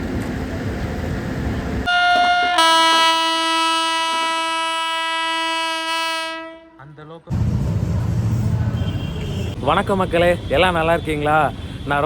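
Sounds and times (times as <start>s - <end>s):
locomotive horn: 1.9s - 6.8s.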